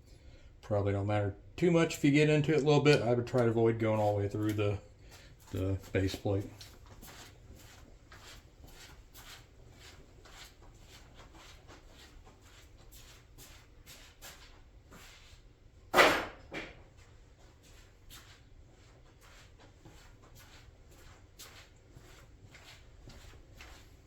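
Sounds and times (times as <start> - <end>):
loud knock: 16.0 - 16.8.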